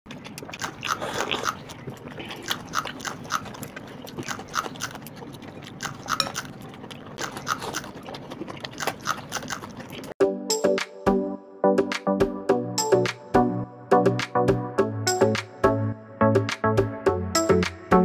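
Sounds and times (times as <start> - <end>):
people chewing with lip smacks: 0.1 - 10.2.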